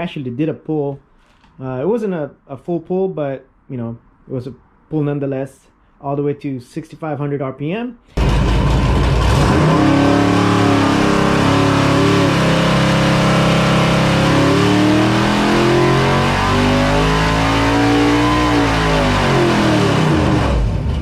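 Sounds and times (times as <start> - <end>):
engine revving on a dyno: 8.2 - 21.0.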